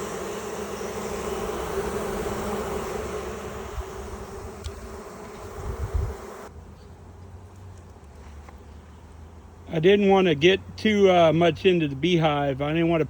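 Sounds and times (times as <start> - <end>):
bees buzzing: 0.0 - 6.5.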